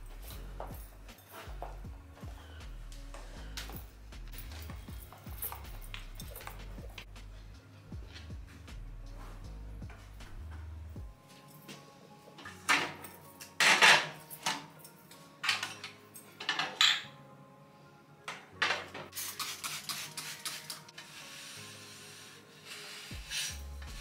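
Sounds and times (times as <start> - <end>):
dishes and cutlery clattering: 12.4 - 17.2, 18.3 - 19.1.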